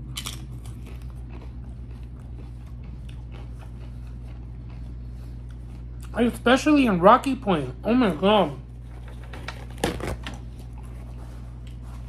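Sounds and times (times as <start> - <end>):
small crunches: 0.0 - 6.1
person chewing: 0.0 - 6.2, 10.3 - 12.0
steady low hum: 0.0 - 12.0.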